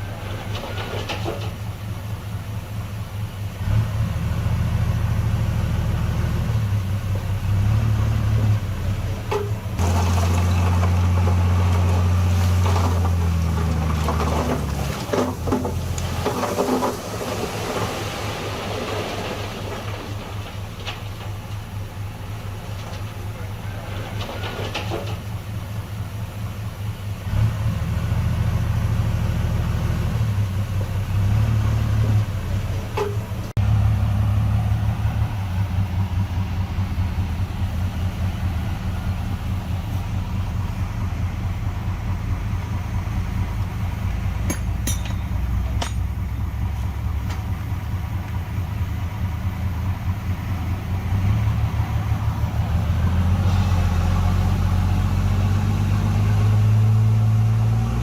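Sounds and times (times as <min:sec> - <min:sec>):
heavy diesel engine running: 0:00.0 - 0:58.0
sharp metal clanks: 0:44.4 - 0:46.2.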